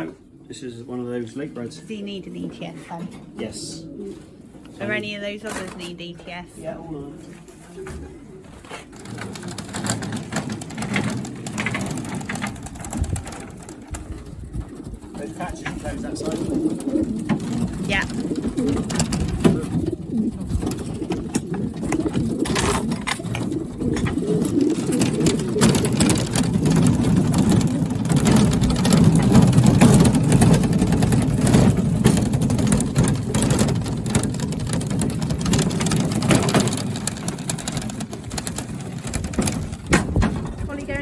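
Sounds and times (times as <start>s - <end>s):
pigeons cooing: 0.0s - 41.0s.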